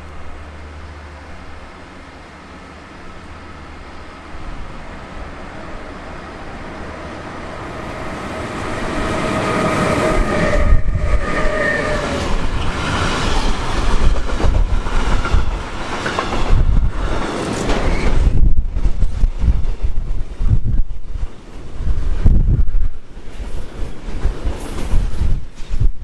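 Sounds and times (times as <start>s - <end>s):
train whine: 0.0s - 25.9s
train passing with rumble: 0.0s - 26.0s
wheels clacking over rail joints: 11.4s - 18.4s.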